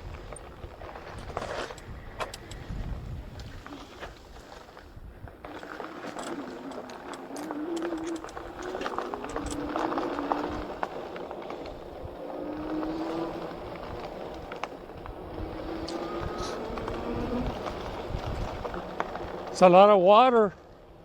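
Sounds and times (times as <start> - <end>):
bike rattling on rough ground: 0.0 - 21.0
electric motor whining: 5.6 - 19.1.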